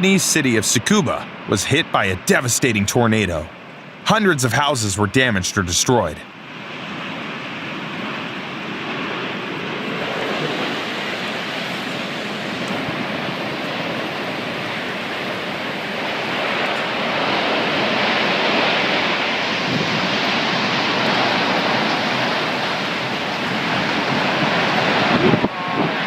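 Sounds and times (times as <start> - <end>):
strong wind buffeting microphone: 6.6 - 26.0.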